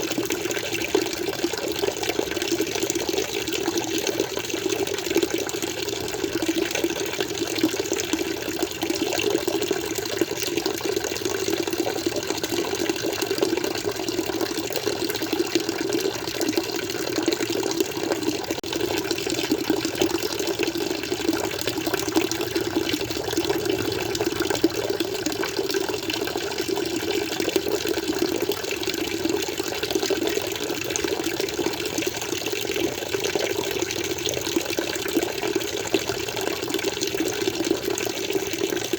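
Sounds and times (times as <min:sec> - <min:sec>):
aquarium water flowing and splashing: 0:00.0 - 0:38.9.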